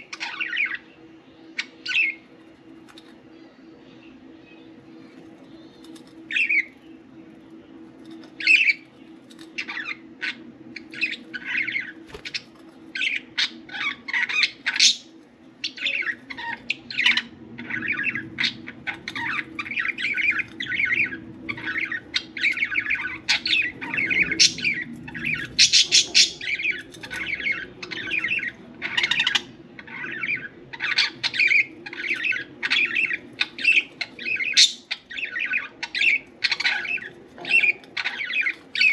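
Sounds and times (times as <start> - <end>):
budgerigars chirping and squawking: 0.0 - 0.9, 1.6 - 3.2, 3.9 - 7.1, 8.0 - 38.9.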